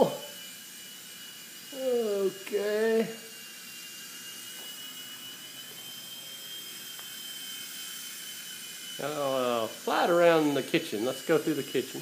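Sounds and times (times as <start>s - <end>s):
rc helicopter motor whine: 0.0s - 12.0s.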